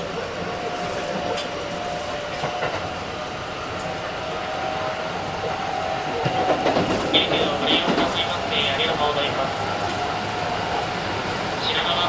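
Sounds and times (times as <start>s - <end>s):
electric train whine: 0.0s - 12.0s
wheels rumbling on rails: 0.0s - 12.0s
rail-joint clicks: 1.1s - 2.9s, 6.0s - 9.0s.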